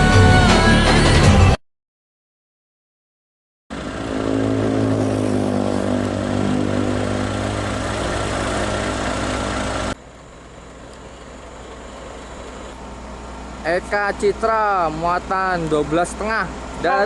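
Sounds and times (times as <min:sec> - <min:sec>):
diesel truck engine running: 0:03.7 - 0:17.0.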